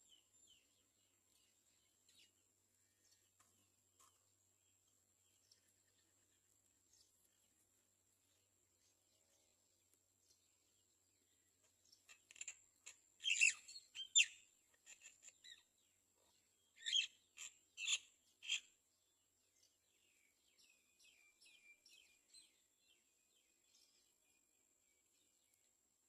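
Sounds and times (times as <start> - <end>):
harsh bird calls: 12.0 - 15.7, 16.8 - 18.7.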